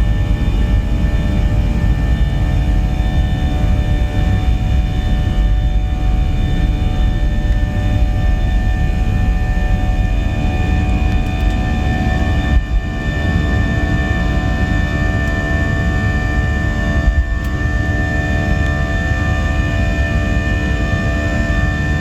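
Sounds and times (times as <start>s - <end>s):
jet engines at takeoff in cabin: 0.0s - 22.0s.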